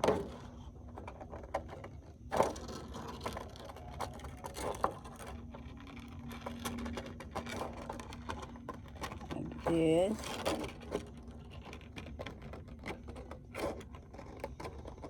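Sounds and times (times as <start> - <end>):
low steady hum: 4.1 - 11.4.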